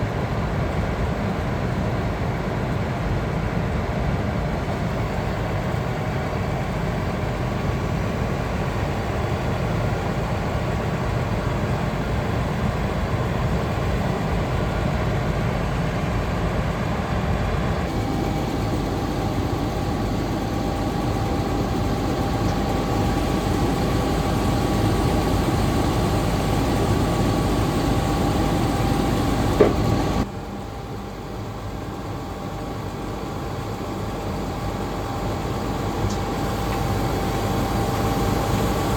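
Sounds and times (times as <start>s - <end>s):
faint steady whine: 0.0s - 38.9s
diesel truck engine running: 17.7s - 30.3s.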